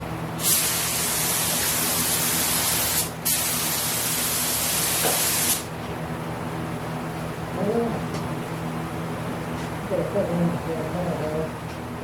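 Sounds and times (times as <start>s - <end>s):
steady low hum: 0.0s - 12.0s
paint spray gun hissing: 0.4s - 5.6s.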